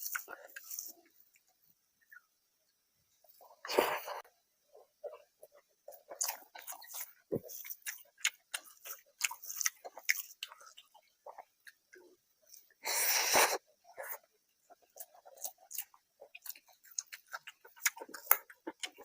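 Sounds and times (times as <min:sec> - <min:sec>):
wet chewing mouth sounds: 0:05.1 - 0:11.8, 0:14.1 - 0:19.0.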